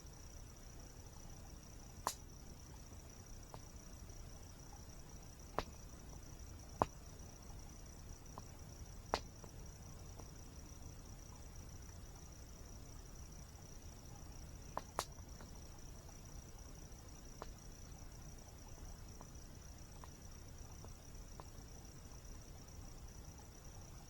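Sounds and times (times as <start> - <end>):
insect trill: 0.0 - 24.0
campfire crackling and popping: 8.2 - 9.6, 14.7 - 15.6.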